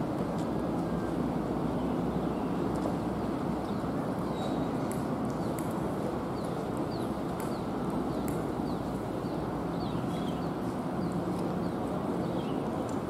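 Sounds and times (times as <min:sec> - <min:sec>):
low background noise: 0:00.0 - 0:13.0
small birds chirping: 0:06.4 - 0:13.0.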